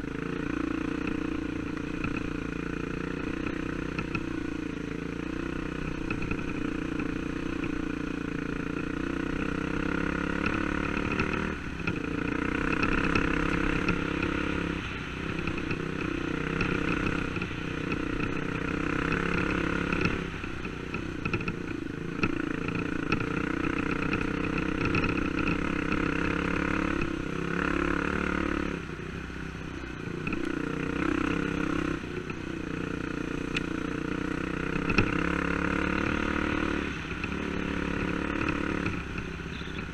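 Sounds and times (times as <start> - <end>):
dirt bike engine revving: 5.1 - 14.8, 22.2 - 28.8, 32.7 - 39.9.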